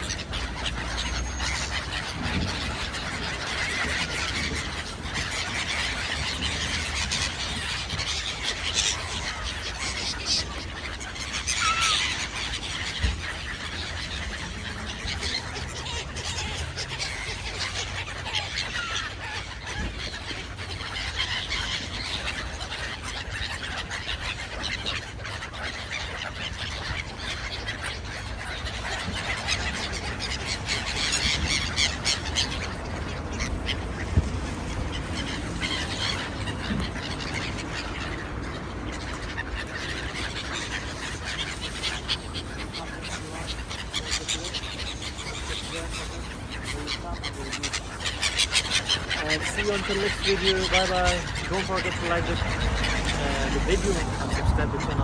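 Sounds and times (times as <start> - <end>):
flock of birds calling: 0.0 - 55.0.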